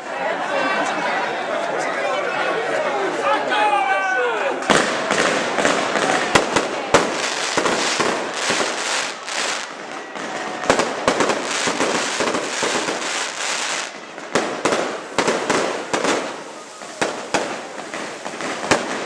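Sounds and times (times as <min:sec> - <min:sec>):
fireworks crackling and banging: 0:04.6 - 0:19.0.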